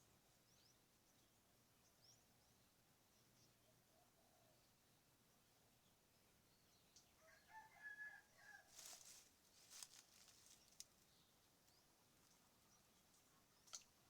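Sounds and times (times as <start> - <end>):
rooster crowing: 7.2 - 8.9.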